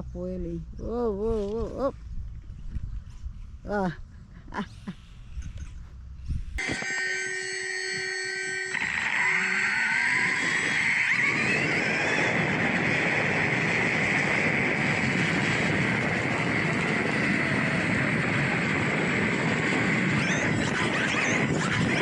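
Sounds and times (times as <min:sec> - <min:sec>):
rush of wind: 0:00.4 - 0:07.0, 0:08.7 - 0:22.0
electric motor whining: 0:06.6 - 0:22.0.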